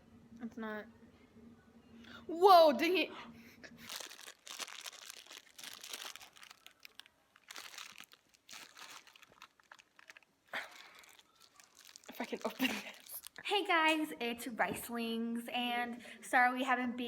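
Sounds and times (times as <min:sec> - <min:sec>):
packaging crinkling: 0:03.8 - 0:13.5.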